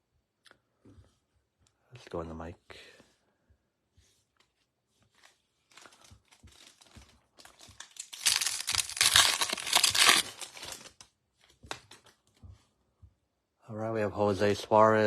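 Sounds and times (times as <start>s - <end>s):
wrapper tearing and crinkling: 5.6s - 11.0s.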